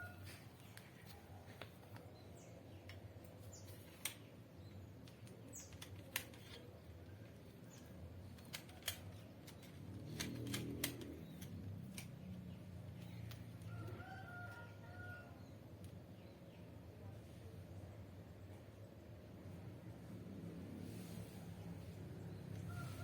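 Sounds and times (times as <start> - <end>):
sharp clicks: 7.8 - 12.2.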